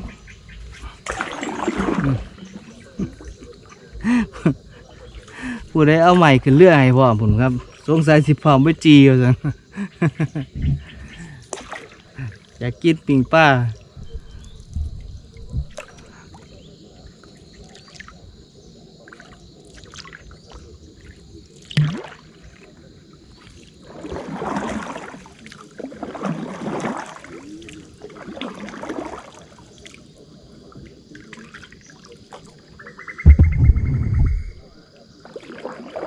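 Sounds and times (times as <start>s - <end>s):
water trickling and dripping: 0.0s - 18.2s, 19.0s - 36.0s
water splashing and sloshing: 0.0s - 36.0s
sharp knock: 33.2s - 34.6s.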